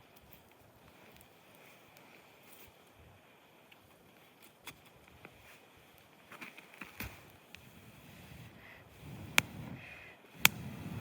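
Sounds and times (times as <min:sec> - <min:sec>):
low steady hiss: 0:00.0 - 0:11.0
faint sharp clicks and snaps: 0:09.3 - 0:09.5, 0:10.4 - 0:10.6.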